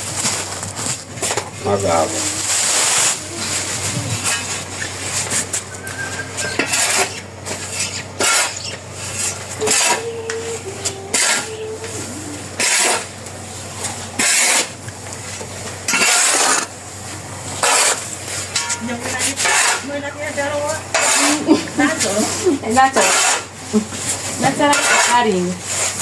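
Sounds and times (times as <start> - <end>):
spoon scraping in cooking pot: 4.2 - 10.0, 17.6 - 19.9, 20.9 - 22.4, 23.0 - 26.0.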